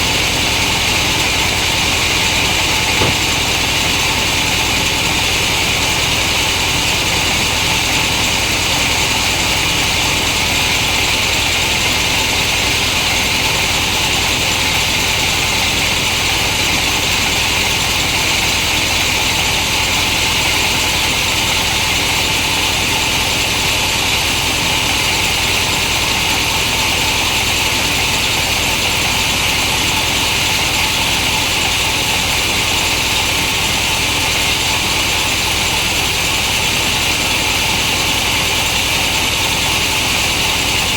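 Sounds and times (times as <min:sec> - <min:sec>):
chainsaw cutting a log: 0:00.6 - 0:04.6.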